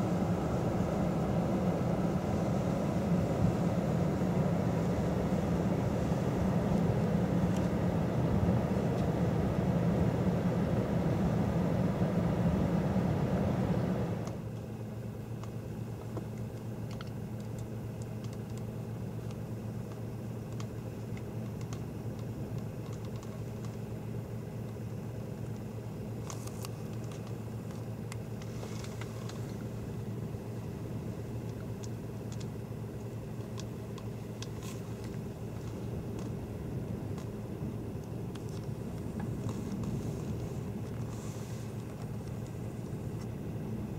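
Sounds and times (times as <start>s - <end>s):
vehicle humming: 0.0s - 43.9s
light clicks and ticks: 15.4s - 23.9s.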